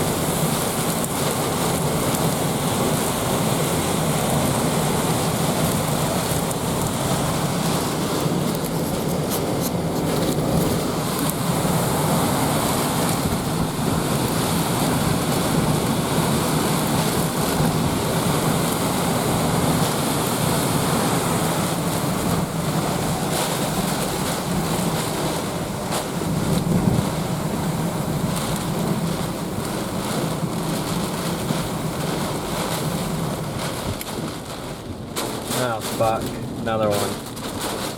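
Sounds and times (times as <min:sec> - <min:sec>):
hurricane wind and rain: 0:00.0 - 0:37.9.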